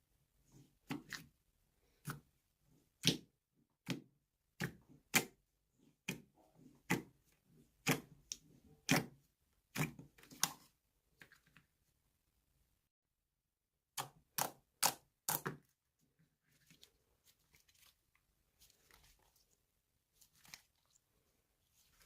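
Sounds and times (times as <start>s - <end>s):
slime squishing with clicking pops: 13.9s - 15.6s.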